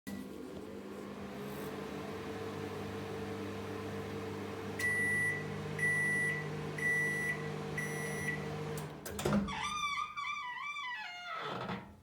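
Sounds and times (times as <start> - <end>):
microwave oven humming: 0.1 - 9.2.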